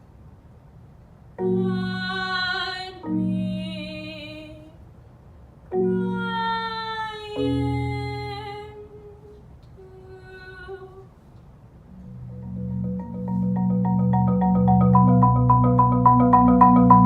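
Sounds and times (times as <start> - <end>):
person singing: 1.4 - 4.7
marimba: 3.0 - 3.7, 12.0 - 17.0.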